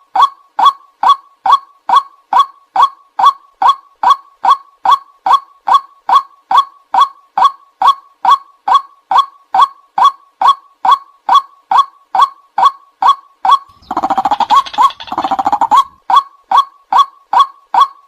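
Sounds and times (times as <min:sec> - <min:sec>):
bird calling sharp notes: 0:13.7 - 0:16.0.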